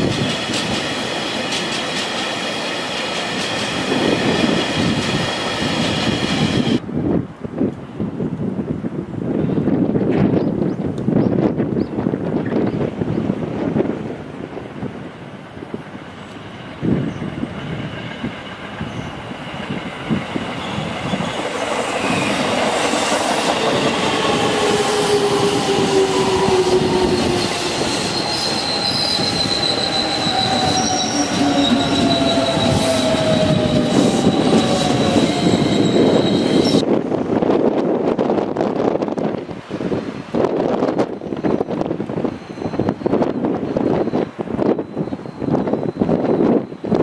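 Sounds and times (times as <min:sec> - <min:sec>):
train wheels squealing on rails: 0:00.0 - 0:06.8, 0:15.9 - 0:36.9, 0:40.5 - 0:47.0
freight train rumbling past: 0:00.0 - 0:47.0.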